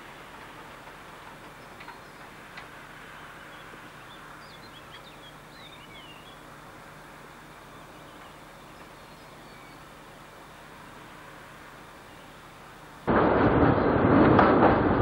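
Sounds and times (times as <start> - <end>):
outdoor background hiss: 0.0 - 14.1
small birds twittering: 1.2 - 13.0.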